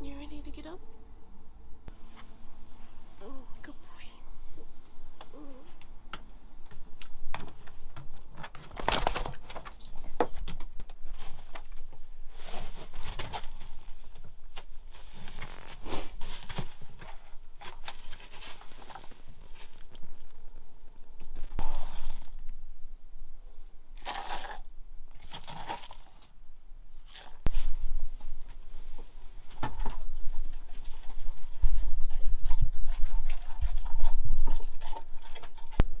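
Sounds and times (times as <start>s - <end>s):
rustling and crinkling handling: 6.6s - 22.6s, 24.0s - 35.8s.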